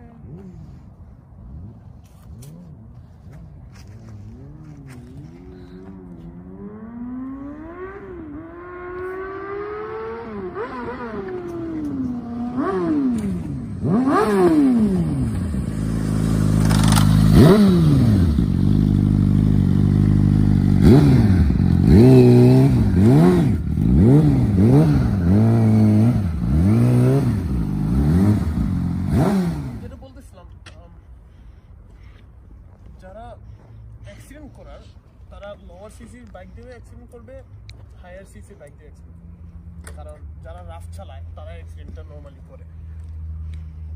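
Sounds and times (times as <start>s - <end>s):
motorcycle engine revving: 1.4s - 30.0s.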